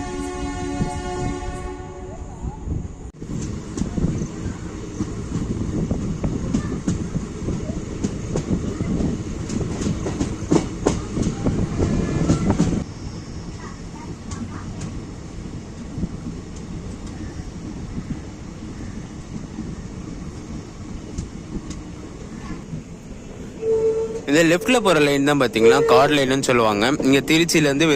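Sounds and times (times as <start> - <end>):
train rumble: 0.0 - 27.9
train wheels clattering: 3.3 - 12.8.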